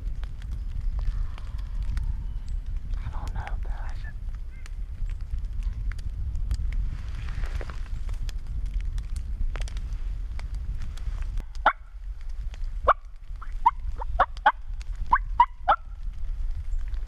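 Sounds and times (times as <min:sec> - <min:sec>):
low wind rumble: 0:00.0 - 0:17.0
turkey yelping: 0:12.9 - 0:15.8.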